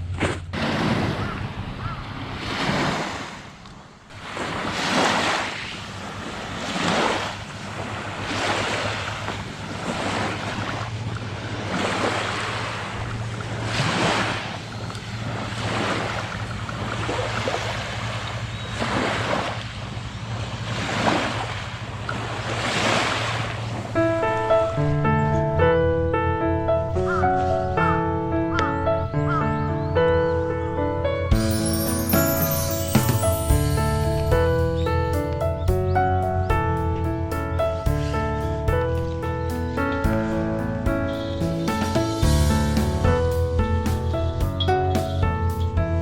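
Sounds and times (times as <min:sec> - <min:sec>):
small sea waves breaking: 0:00.0 - 0:24.1.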